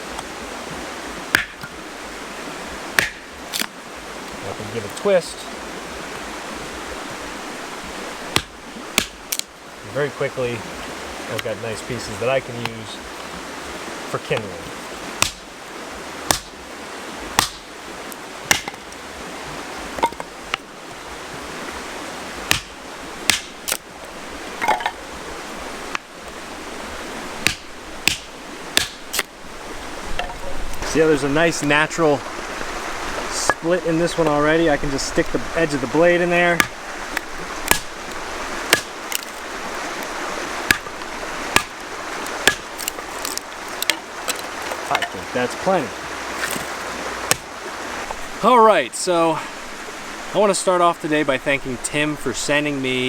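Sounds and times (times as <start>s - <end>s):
steady background hiss: 0.0s - 53.0s
hatchet chopping wood: 1.3s - 1.8s, 3.0s - 3.7s, 8.3s - 9.5s, 15.2s - 15.5s, 16.2s - 16.6s, 17.3s - 17.7s, 18.4s - 18.9s, 22.5s - 23.8s, 27.4s - 29.3s, 36.5s - 45.2s, 46.3s - 47.5s.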